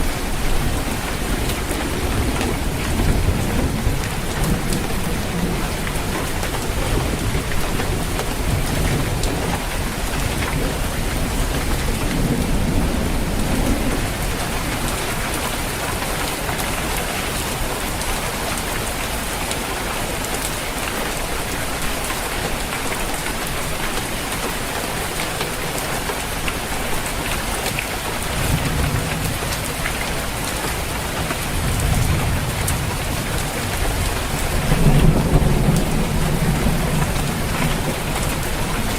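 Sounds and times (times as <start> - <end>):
low thunder rumbling: 0.0 - 15.8, 28.2 - 38.9
heavy rain on a roof: 0.0 - 38.9.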